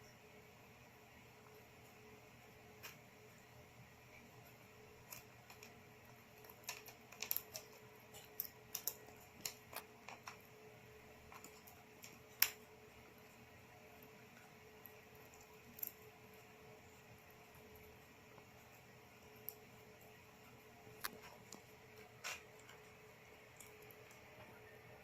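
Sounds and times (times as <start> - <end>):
steady faint hum: 0.0 - 25.0
small clicks and taps: 5.0 - 10.5, 11.3 - 12.7, 21.0 - 24.6.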